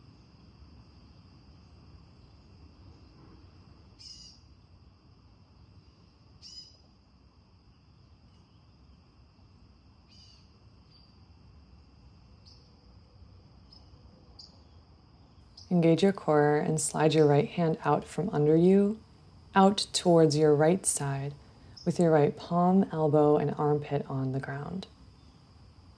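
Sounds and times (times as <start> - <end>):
crickets chirring: 0.0 - 25.9
short bird chirps: 4.0 - 4.4.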